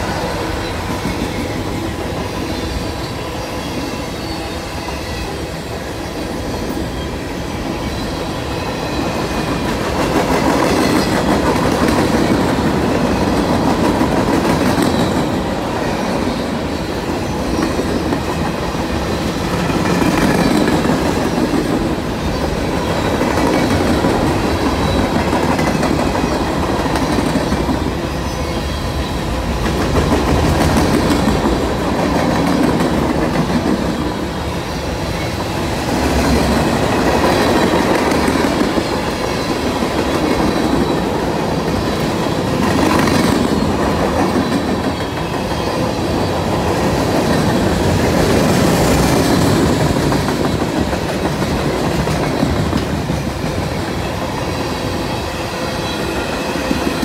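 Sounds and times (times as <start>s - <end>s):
freight train wheels clacking: 0.0s - 57.0s.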